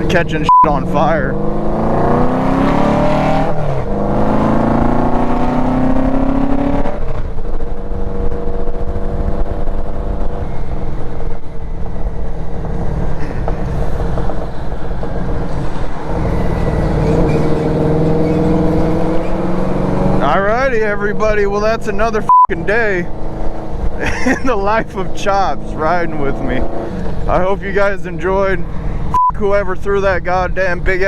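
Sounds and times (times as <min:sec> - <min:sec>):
motorcycle engine accelerating: 0:00.0 - 0:29.1
low rumble: 0:07.1 - 0:31.0.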